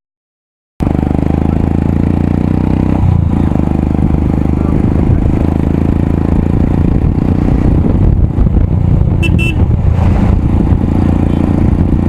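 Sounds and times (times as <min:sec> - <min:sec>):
motorcycle engine running loudly: 0:00.8 - 0:12.0
horn toots: 0:09.2 - 0:09.7.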